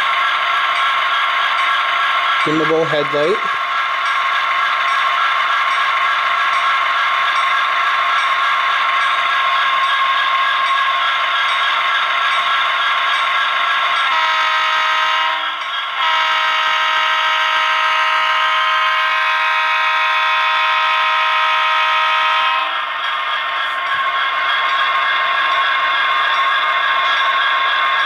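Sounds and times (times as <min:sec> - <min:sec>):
model locomotive running sound: 0:00.0 - 0:28.0
model train diesel horn: 0:14.1 - 0:22.8.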